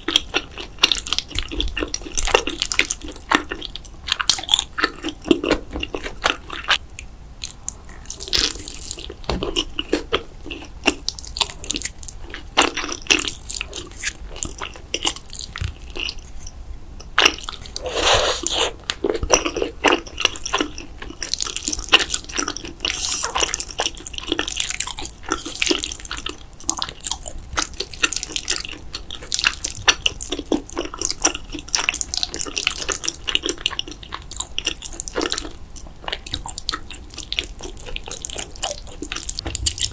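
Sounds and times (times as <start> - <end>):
wet chewing and lip-smacking: 0.0 - 39.9.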